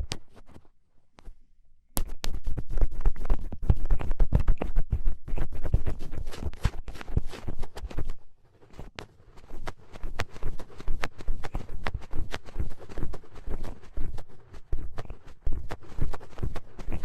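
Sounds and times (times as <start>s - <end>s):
ear pick scraping earwax: 2.0s - 17.0s.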